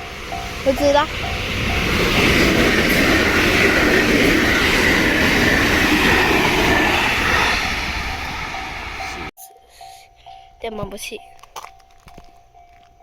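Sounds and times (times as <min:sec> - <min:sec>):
electric train wheels on rail: 0:00.0 - 0:09.3.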